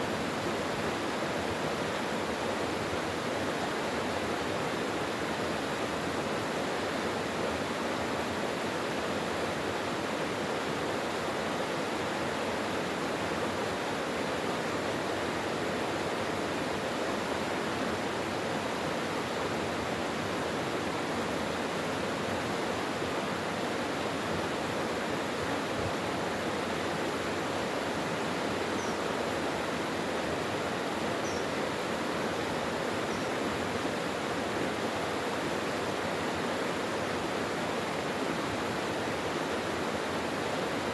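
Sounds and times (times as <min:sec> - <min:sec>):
stream rushing over rocks: 0:00.0 - 0:40.9
faint high chirps: 0:28.8 - 0:29.1, 0:31.2 - 0:31.5.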